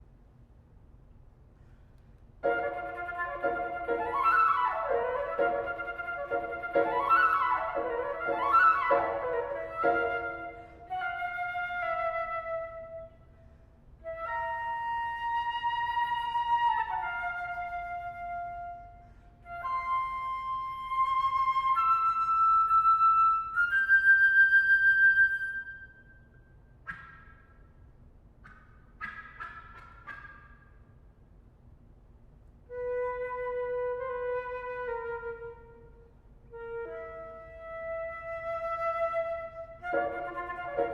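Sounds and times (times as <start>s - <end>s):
solo flute playing: 2.4s - 26.3s, 32.7s - 40.9s.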